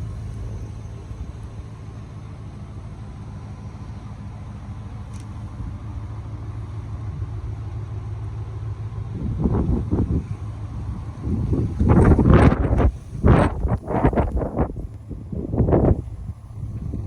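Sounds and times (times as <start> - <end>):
vehicle rumbling on snowy road: 0.0 - 17.0
wind buffeting microphone: 9.0 - 17.0.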